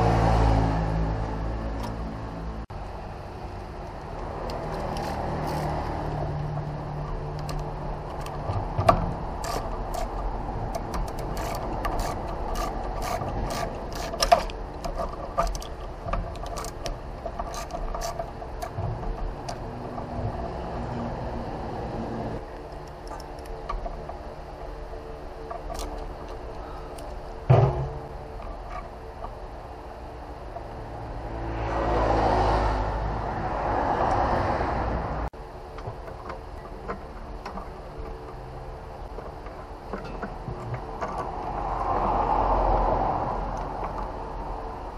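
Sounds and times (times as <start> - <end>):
car engine and tyre noise: 0.0 - 44.9
steady background hum: 0.9 - 32.0, 34.8 - 44.9
metallic clicks and knocks: 3.9 - 21.0, 22.4 - 29.4, 35.7 - 42.4.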